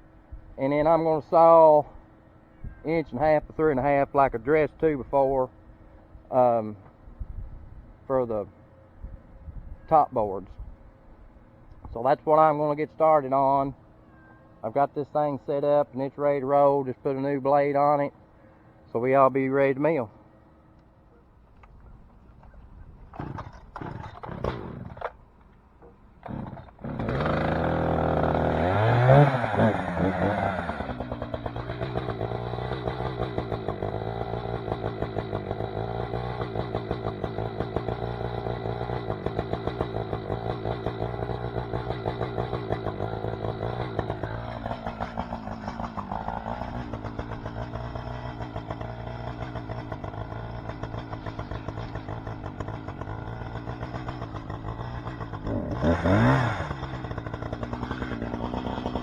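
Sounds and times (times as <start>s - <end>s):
sawmill engine revving: 23.1s - 25.2s, 25.9s - 59.0s.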